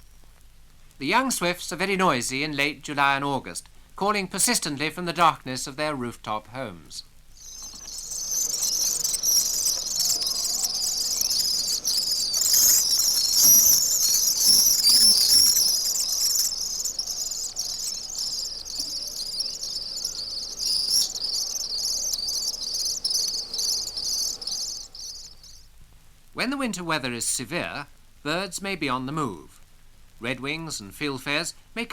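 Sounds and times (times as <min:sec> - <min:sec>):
young swifts chittering: 0:07.3 - 0:25.6.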